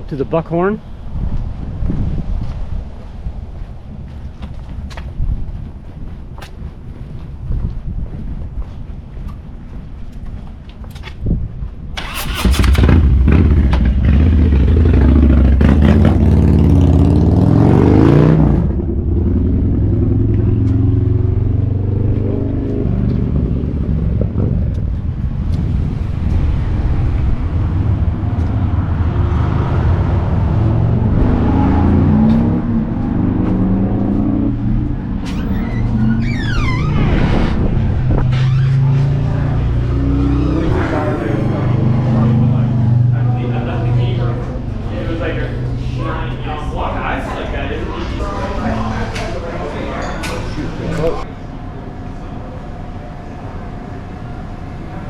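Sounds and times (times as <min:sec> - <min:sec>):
vehicle engine starting and revving: 0:12.0 - 0:51.4.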